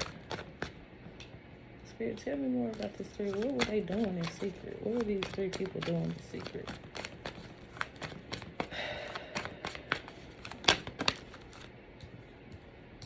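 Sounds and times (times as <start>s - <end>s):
cards being shuffled: 0.0s - 0.8s, 2.7s - 11.7s.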